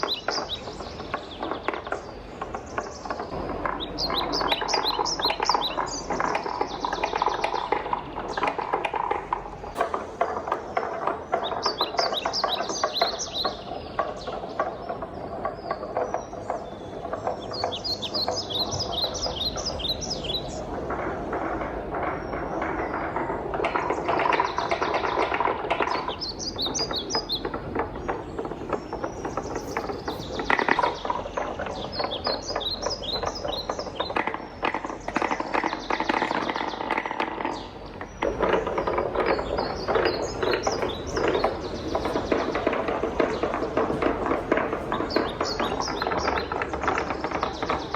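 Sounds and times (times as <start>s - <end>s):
wooden balls rattling on track: 0.0s - 47.9s.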